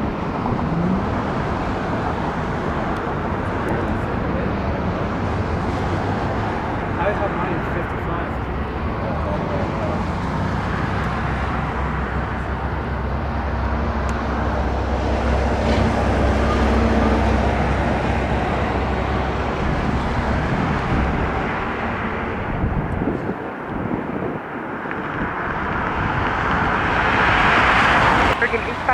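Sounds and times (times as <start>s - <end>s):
jet engines rumbling: 0.0s - 28.9s.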